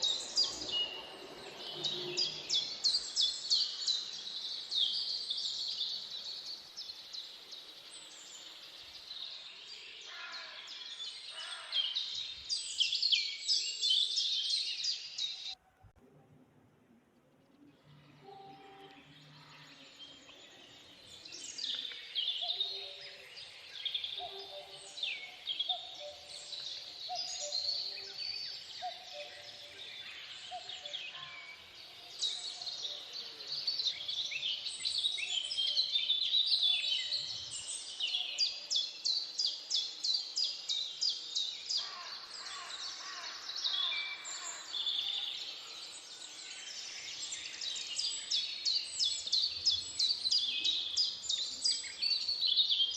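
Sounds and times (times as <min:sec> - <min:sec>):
birds chirping and whistling: 0:00.0 - 0:07.1, 0:18.2 - 0:41.8.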